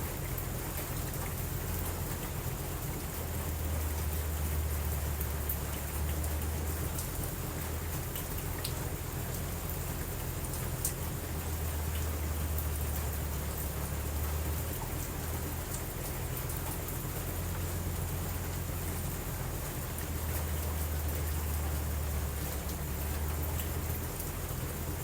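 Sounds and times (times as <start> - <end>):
steady rain falling: 0.0 - 25.0
light ticks: 10.5 - 11.0.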